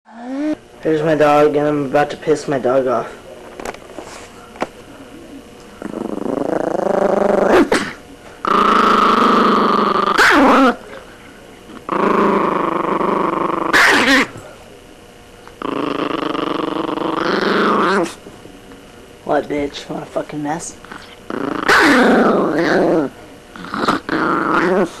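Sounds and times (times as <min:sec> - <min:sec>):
dog growling: 0:00.1 - 0:00.6, 0:05.8 - 0:10.9, 0:11.7 - 0:14.4, 0:15.6 - 0:18.2, 0:20.8 - 0:25.0
dog barking sharply: 0:13.8 - 0:14.3.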